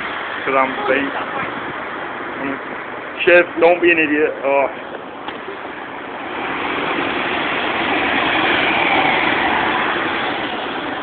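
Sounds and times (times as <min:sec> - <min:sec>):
bus passing close by: 0:05.2 - 0:11.0.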